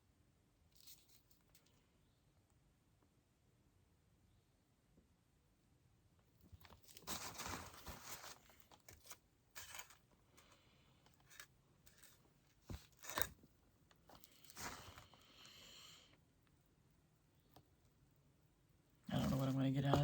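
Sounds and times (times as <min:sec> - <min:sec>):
rustling and crinkling handling: 0:06.4 - 0:15.6, 0:19.0 - 0:20.0.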